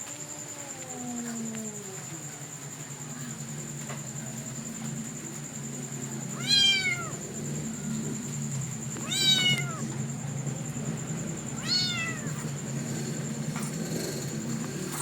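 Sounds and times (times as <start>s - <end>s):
kitten meowing: 6.4s - 7.1s, 9.0s - 9.8s, 11.6s - 12.3s.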